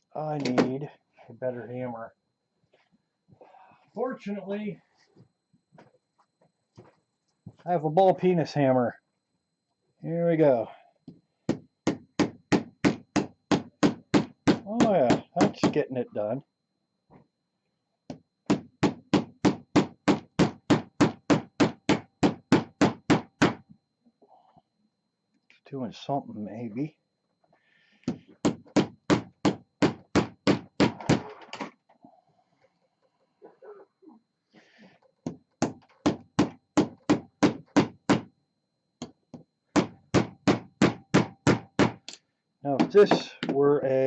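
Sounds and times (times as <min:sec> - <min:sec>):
hammer blows on battery case: 0:11.4 - 0:15.8, 0:18.1 - 0:23.7, 0:28.0 - 0:31.3, 0:35.3 - 0:38.4, 0:39.0 - 0:42.2
hammer striking battery case: 0:35.3 - 0:38.3.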